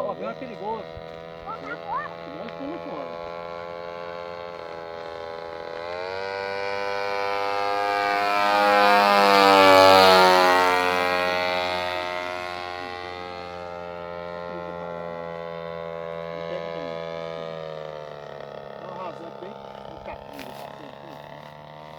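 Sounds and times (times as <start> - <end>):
model airplane engine droning: 0.0 - 21.9.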